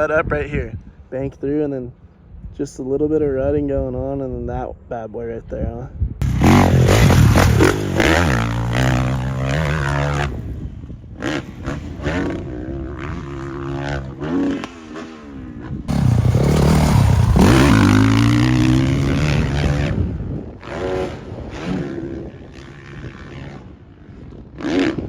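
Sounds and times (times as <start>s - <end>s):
dirt bike engines revving: 6.2s - 23.8s.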